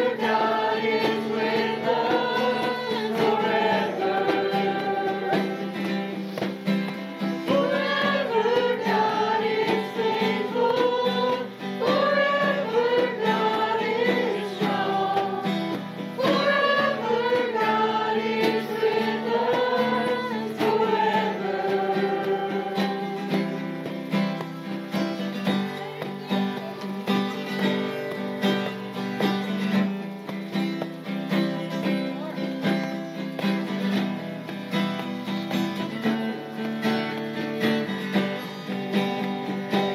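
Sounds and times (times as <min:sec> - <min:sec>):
group singing a worship song: 0:00.0 - 0:23.8
strummed acoustic guitar: 0:00.0 - 0:39.9.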